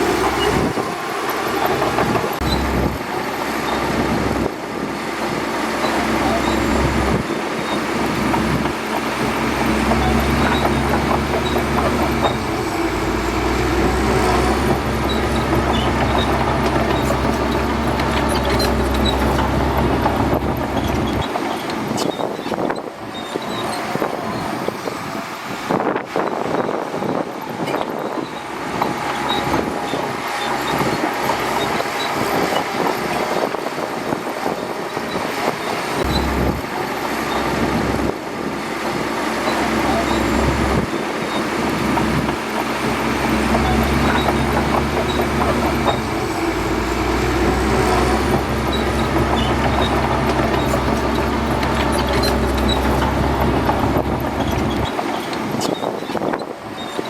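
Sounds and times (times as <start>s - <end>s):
bulldozer diesel engine droning: 0.0s - 57.0s
continuous clatter: 0.0s - 57.0s.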